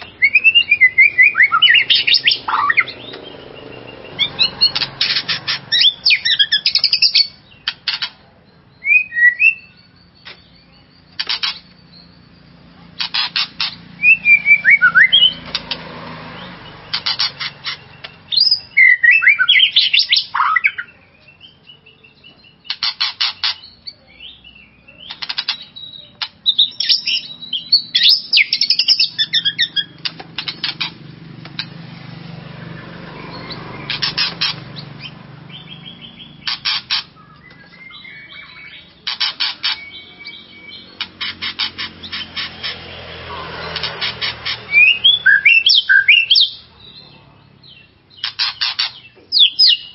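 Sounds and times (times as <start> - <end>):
bird whistled song: 0.0 - 15.6, 16.4 - 30.8, 32.8 - 42.8, 44.2 - 46.9, 47.6 - 49.9
bird clicking chatter: 4.6 - 8.2, 11.1 - 11.8, 12.9 - 13.9, 15.4 - 15.9, 16.9 - 18.5, 22.6 - 23.7, 25.0 - 27.0, 28.0 - 31.8, 33.8 - 35.1, 36.4 - 37.9, 39.0 - 40.0, 40.9 - 42.9, 43.5 - 44.7, 48.2 - 49.8.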